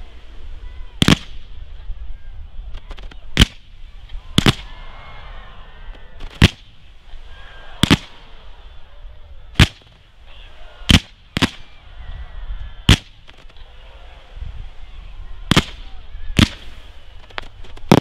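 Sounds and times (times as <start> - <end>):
faint hiss: 0.0 - 18.0
firework shells bursting: 7.8 - 8.3, 15.5 - 18.0.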